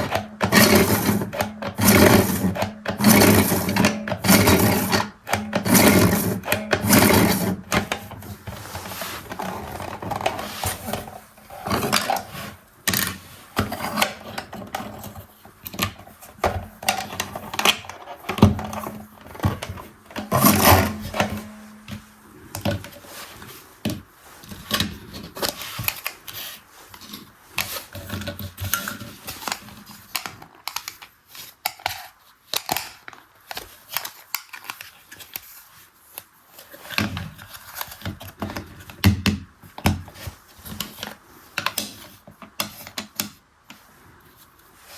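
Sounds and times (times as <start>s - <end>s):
plastic parts clattering: 0.0s - 35.5s.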